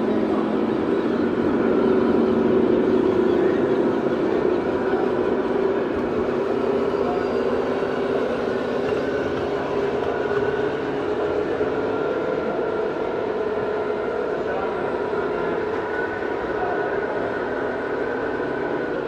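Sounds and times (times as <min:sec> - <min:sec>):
faint steady tones: 0:00.0 - 0:19.0
steady mechanical drone: 0:00.0 - 0:19.0.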